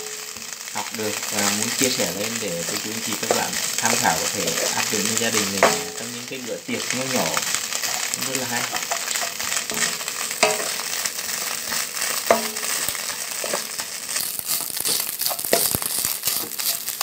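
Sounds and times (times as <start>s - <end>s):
fish sizzling in oil: 0.0s - 17.0s
wooden spatula scraping pan: 6.8s - 17.0s.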